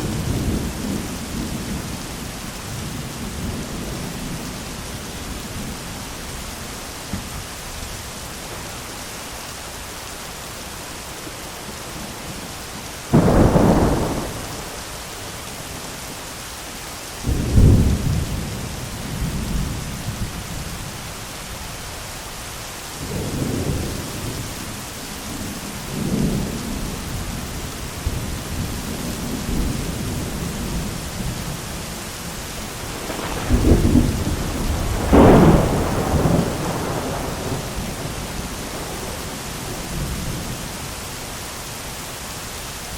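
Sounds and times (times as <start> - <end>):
heavy rain: 0.0 - 42.9
thunder cracks and rumbling: 13.1 - 14.8, 32.8 - 40.6.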